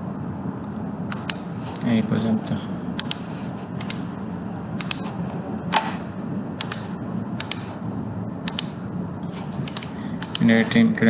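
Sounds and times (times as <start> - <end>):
steady low hum: 0.0 - 11.0
computer mouse clicking: 0.6 - 1.9, 3.0 - 4.1, 4.8 - 6.0, 6.6 - 7.7, 8.4 - 8.8, 9.5 - 10.5.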